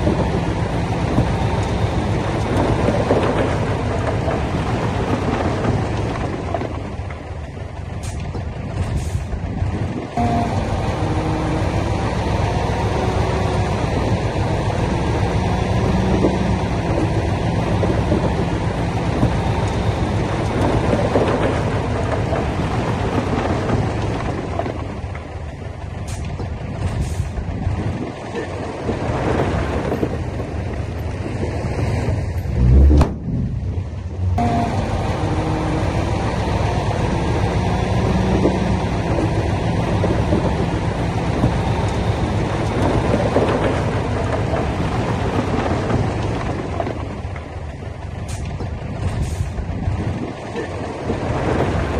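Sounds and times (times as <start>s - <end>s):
diesel machinery running: 0.0s - 51.9s
loud low thump: 32.5s - 34.4s.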